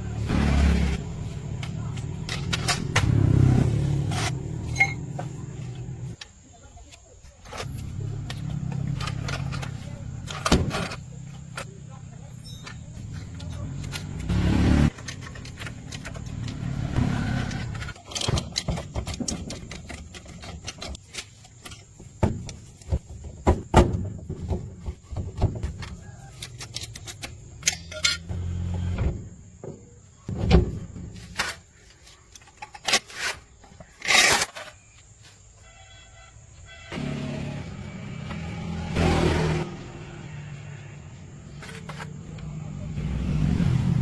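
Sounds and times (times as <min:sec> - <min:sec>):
knocks and clatter of tools: 0:01.5 - 0:03.2, 0:04.0 - 0:14.3, 0:14.9 - 0:28.4, 0:29.0 - 0:35.1, 0:41.5 - 0:42.6.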